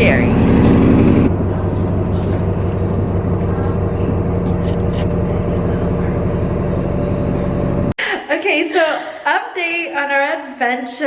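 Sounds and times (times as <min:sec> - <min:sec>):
vehicle engine droning: 0:00.0 - 0:08.0.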